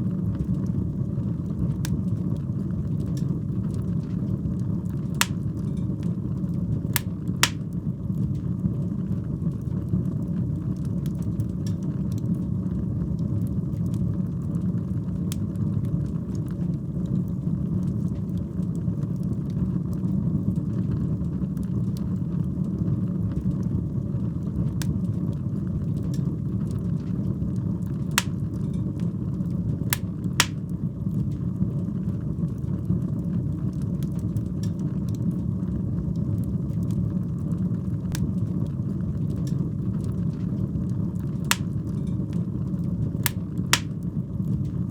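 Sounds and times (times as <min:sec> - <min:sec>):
fire crackling and popping: 0:05.2 - 0:05.5, 0:07.0 - 0:07.8, 0:28.2 - 0:28.8, 0:30.0 - 0:30.7, 0:41.5 - 0:42.1, 0:43.3 - 0:44.0.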